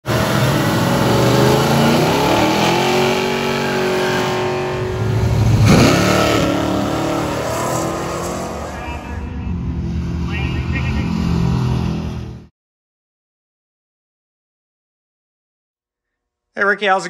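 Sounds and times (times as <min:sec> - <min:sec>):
drag car engine revving hard: 0:00.0 - 0:10.3.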